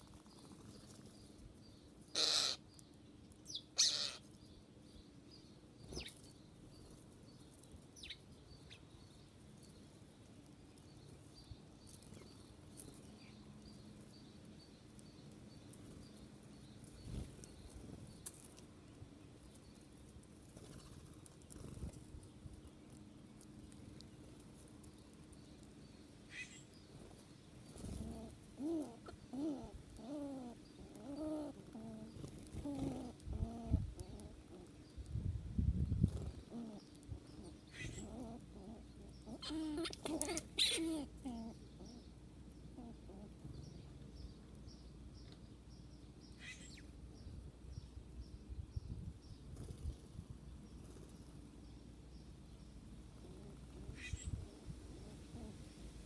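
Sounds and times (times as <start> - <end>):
bird chirps and clicks: 0.0 - 18.7, 19.3 - 35.2, 36.0 - 42.7, 43.6 - 46.9
dove cooing: 2.1 - 2.6, 27.7 - 34.8, 36.0 - 42.0, 42.7 - 43.5, 53.1 - 55.8
wings fluttering: 16.8 - 18.6, 20.4 - 22.2, 26.3 - 29.6, 31.5 - 33.3.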